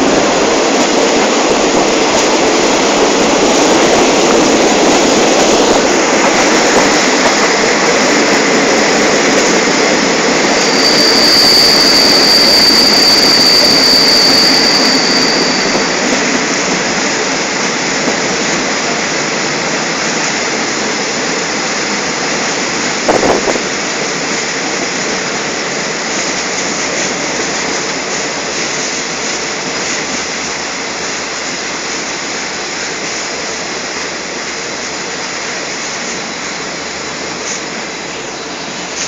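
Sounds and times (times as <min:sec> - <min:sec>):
train running noise: 0:00.0 - 0:39.0
wind on microphone: 0:22.9 - 0:23.8.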